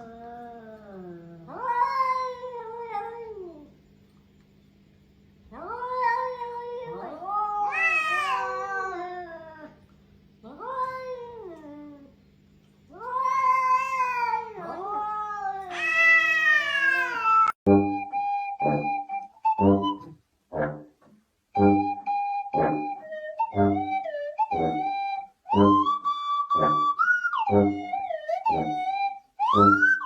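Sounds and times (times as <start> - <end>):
cats caterwauling: 0.0 - 3.8, 5.5 - 12.2, 12.9 - 17.6.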